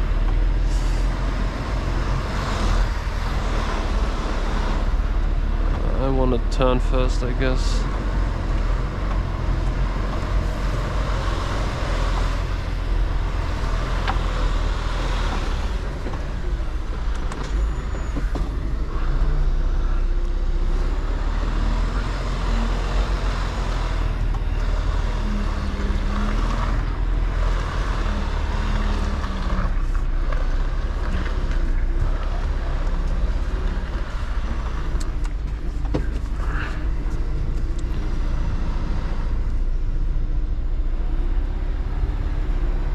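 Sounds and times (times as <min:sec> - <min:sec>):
road and tyre noise: 0:00.0 - 0:42.9
truck diesel engine rumbling: 0:00.0 - 0:42.9.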